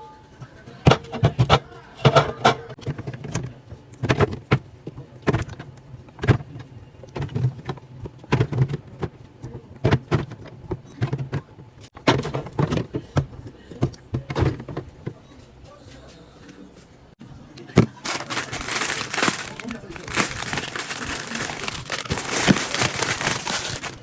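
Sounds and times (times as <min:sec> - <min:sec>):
containers clattering: 0:17.8 - 0:24.0.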